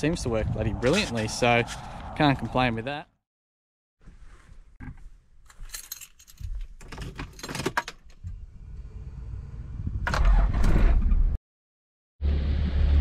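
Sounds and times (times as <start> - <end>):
keys jangling: 5.5 - 8.1.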